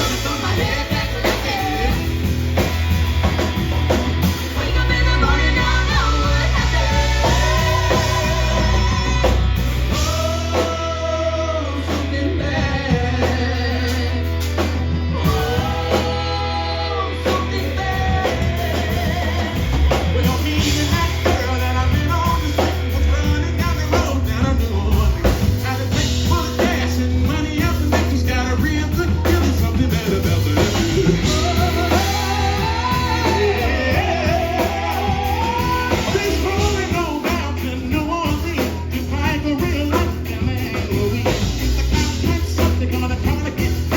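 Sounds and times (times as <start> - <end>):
live band playing: 0.0 - 43.9
person singing: 0.0 - 43.9.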